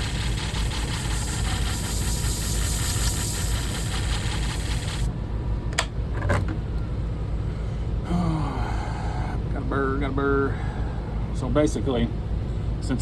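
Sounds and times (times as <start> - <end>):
blade grinding on abrasive disc: 0.0 - 5.0
sharpening disc motor hum: 0.0 - 5.1.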